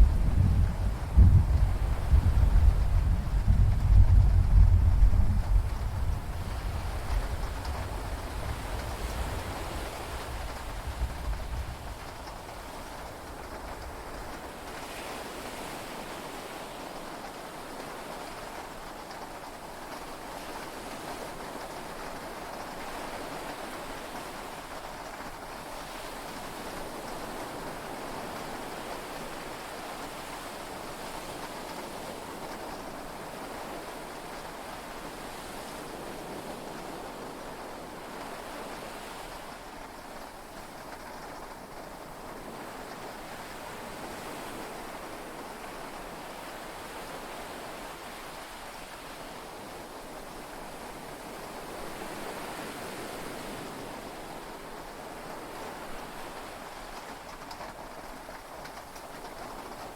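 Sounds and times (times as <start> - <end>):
sea waves: 25.5 - 59.9.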